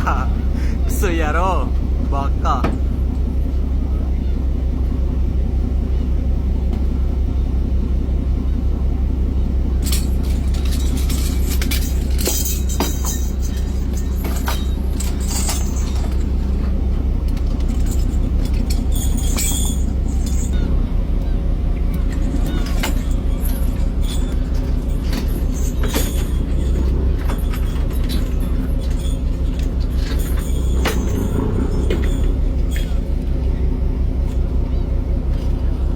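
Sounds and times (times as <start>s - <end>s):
boat engine droning: 0.0s - 35.9s
knocks and clanks on deck: 2.6s - 3.0s, 29.6s - 33.0s.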